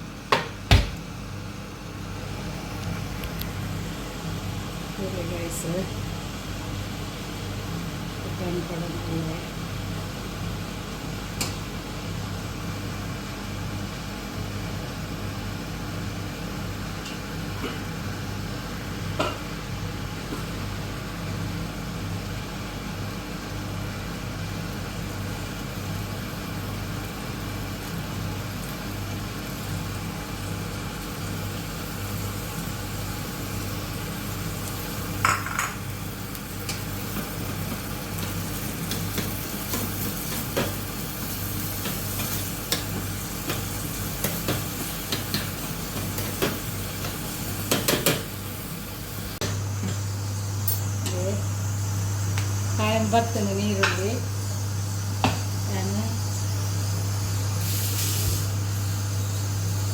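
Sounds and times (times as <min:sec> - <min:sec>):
food sizzling in a pan: 0:22.7 - 0:59.9.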